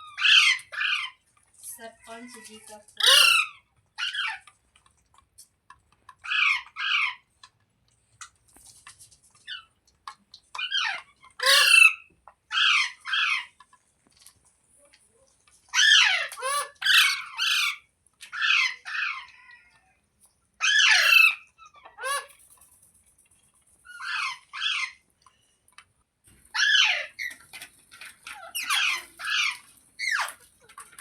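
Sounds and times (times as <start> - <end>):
parrot squawking: 0.0 - 1.2, 3.0 - 4.4, 6.2 - 7.2, 10.6 - 13.5, 15.7 - 19.4, 20.6 - 22.4, 23.9 - 25.0, 26.5 - 27.4, 28.2 - 30.4.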